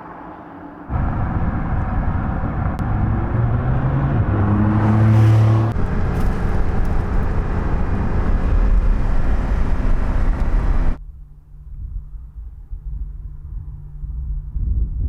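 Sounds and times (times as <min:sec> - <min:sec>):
road noise: 0:00.0 - 0:11.0
car engine running: 0:00.9 - 0:11.0.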